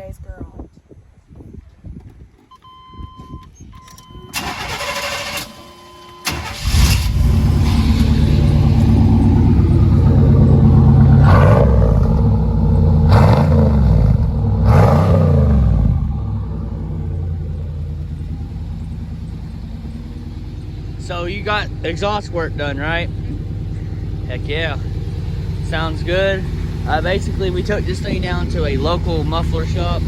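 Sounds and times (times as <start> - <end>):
engine starter cranking: 3.8 - 8.7
truck engine revving: 6.3 - 30.0.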